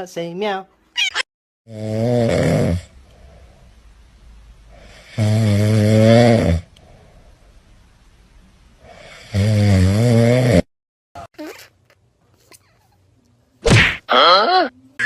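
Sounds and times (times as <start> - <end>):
pet snoring: 1.7 - 2.9, 4.8 - 6.7, 8.9 - 10.7
quiet breathing: 2.9 - 5.2, 6.6 - 8.0, 8.7 - 9.4.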